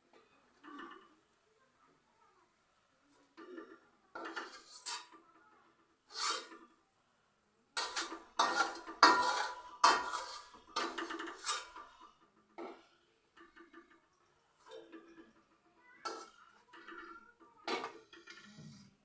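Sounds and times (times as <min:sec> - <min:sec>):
metal utensils scraping a pan: 0:03.5 - 0:05.3, 0:06.0 - 0:06.7, 0:07.8 - 0:12.8, 0:14.6 - 0:19.0.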